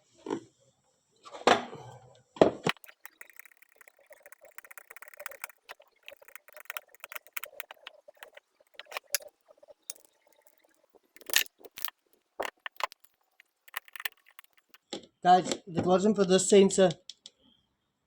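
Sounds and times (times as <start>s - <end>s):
plastic parts clicking and tapping: 2.6s - 14.9s.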